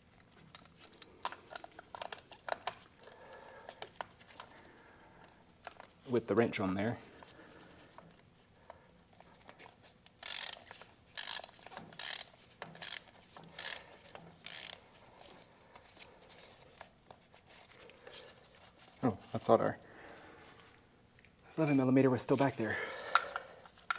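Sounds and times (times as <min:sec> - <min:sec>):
ratchet wrench clicking: 0:10.2 - 0:14.8.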